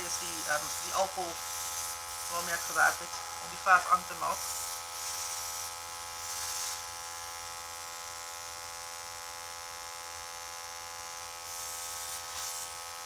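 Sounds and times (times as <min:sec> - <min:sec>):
airbrush hissing: 0:00.0 - 0:05.6, 0:06.2 - 0:06.9
airbrush compressor buzzing: 0:00.0 - 0:13.0.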